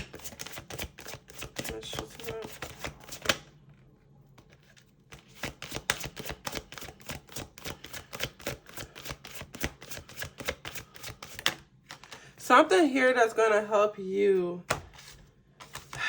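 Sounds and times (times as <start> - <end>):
cards being shuffled by hand: 0.0 - 3.5, 4.4 - 12.3, 14.7 - 16.0.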